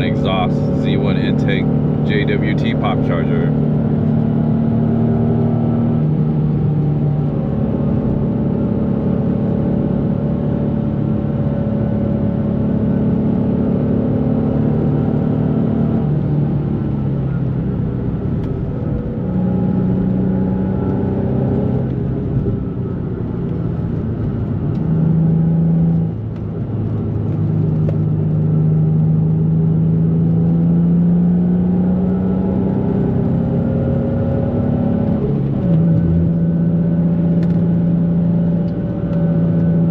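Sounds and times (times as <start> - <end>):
car engine while driving: 0.0 - 39.9.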